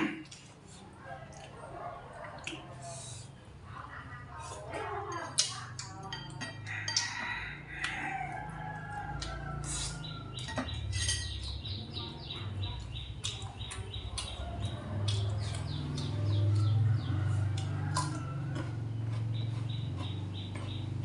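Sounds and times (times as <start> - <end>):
birds chirping rapidly: 5.3 - 21.0.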